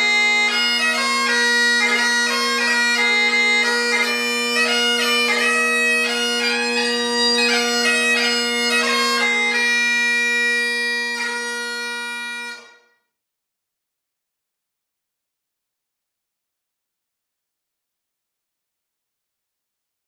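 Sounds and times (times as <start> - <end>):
bagpipes playing a tune: 0.0 - 12.9.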